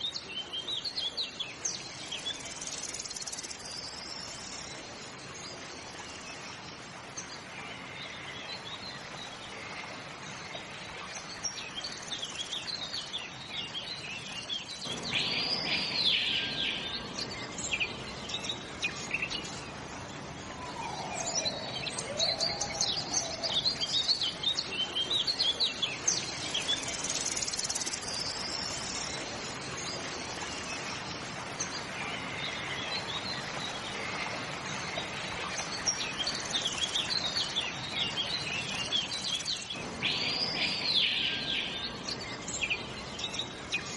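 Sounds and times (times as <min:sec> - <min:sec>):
steady outdoor hiss: 0:00.0 - 0:43.9
birds chirping and calling: 0:14.9 - 0:25.5
low sliding bird calls: 0:20.3 - 0:23.9.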